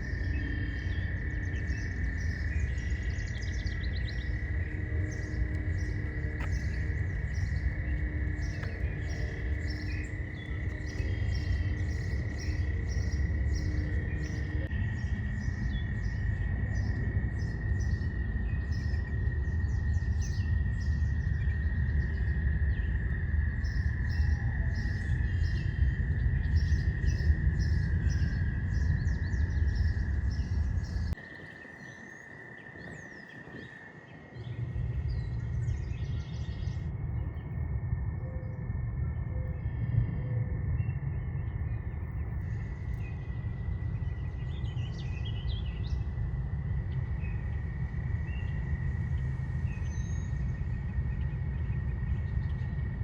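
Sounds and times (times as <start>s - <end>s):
high-pitched drone: 0.0s - 21.1s
steady low rumble: 0.0s - 31.2s, 33.6s - 53.0s
songbirds chirping and singing: 0.0s - 53.0s.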